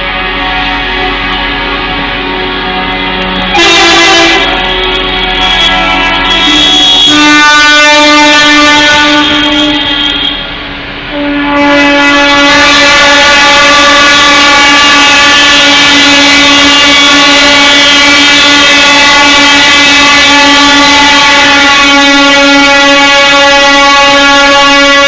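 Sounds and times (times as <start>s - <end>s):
truck horn long blast: 0.0s - 25.0s.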